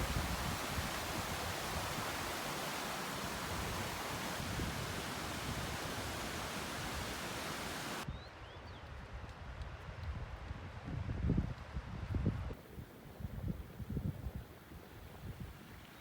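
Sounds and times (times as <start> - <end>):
fast-flowing stream rushing: 0.0 - 8.0.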